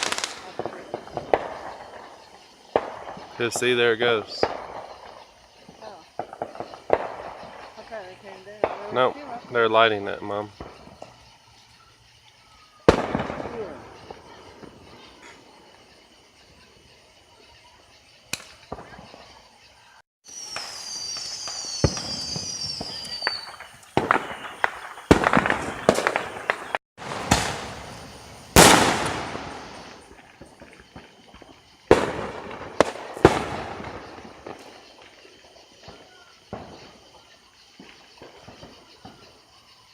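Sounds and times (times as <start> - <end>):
firework crack: 0.0 - 11.4, 12.8 - 16.4, 18.2 - 19.6, 20.3 - 39.6
firework bangs and crackling: 0.0 - 39.9
firework whistles falling in pitch: 20.3 - 28.0.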